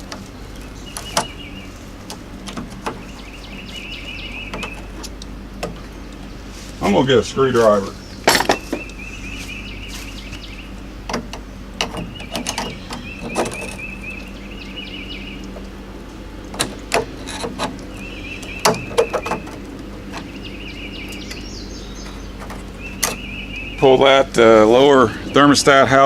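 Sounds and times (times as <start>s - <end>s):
steady low hum: 0.0s - 26.0s
high chirping trill: 3.0s - 5.0s, 5.9s - 15.6s, 17.9s - 26.0s
clicks and knocks of handling: 11.0s - 13.9s, 15.4s - 20.4s.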